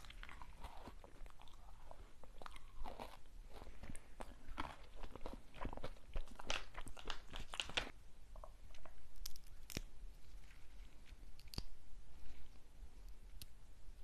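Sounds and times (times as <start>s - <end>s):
crunching of a crunchy snack: 0.0s - 7.9s
soft chewing: 0.0s - 13.6s.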